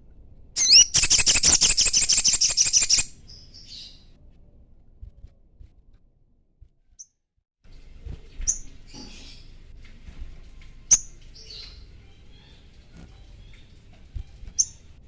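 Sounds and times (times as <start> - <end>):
bird giving high sharp chirps: 0.6 - 3.2.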